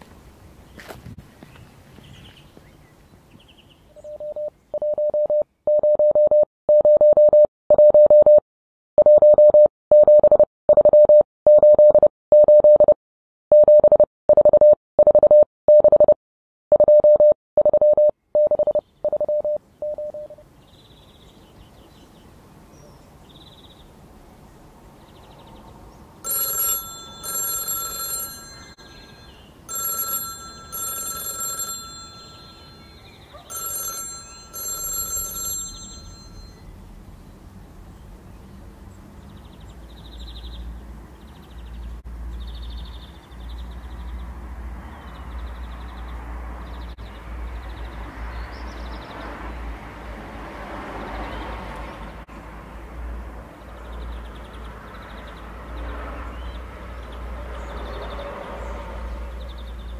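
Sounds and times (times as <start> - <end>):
telephone bell ringing: 4.0 - 6.0, 16.8 - 20.4, 26.2 - 36.6
morse code tone: 4.0 - 8.4, 9.0 - 20.4, 26.2 - 36.6.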